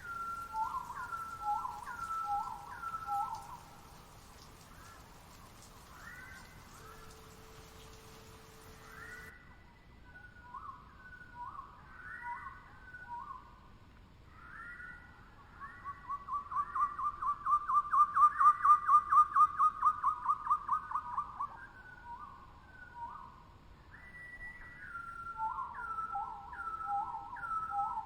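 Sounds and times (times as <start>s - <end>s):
bird whistling: 0.0s - 3.7s, 5.9s - 9.4s, 23.9s - 28.0s.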